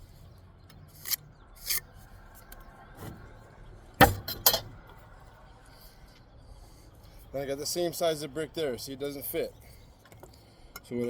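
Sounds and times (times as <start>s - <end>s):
trowel scraping brick: 0.9s - 1.9s.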